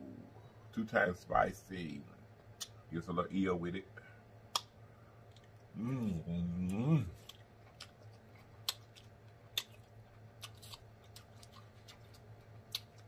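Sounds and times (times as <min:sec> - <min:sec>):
low steady hum: 0:00.0 - 0:13.0
soft wet chewing: 0:04.5 - 0:13.0.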